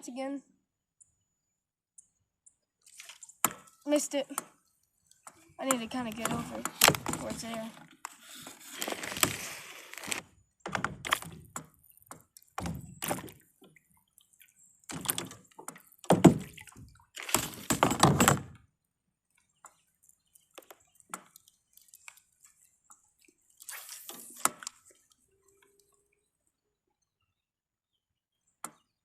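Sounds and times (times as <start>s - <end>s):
water dripping: 2.0s - 7.9s, 11.0s - 17.8s, 19.3s - 26.3s
paddle splashing in water: 2.8s - 10.2s, 10.8s - 18.5s, 19.4s - 25.8s.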